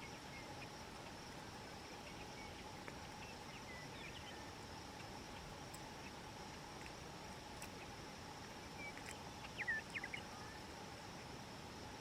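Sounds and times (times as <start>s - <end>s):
insect drone: 0.0s - 12.0s
bird chirps: 2.0s - 4.5s, 8.7s - 10.7s.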